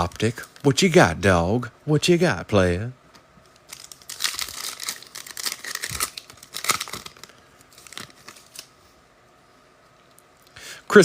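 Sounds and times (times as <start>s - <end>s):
foil wrapper tearing and crinkling: 3.6s - 8.7s.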